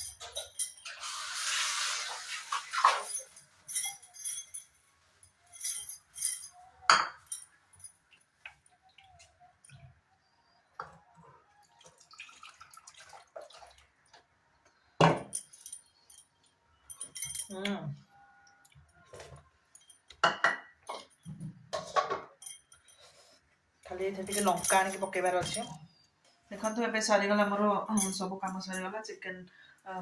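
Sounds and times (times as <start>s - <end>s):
dishes and utensils clinking: 0.0s - 9.9s, 19.1s - 23.4s.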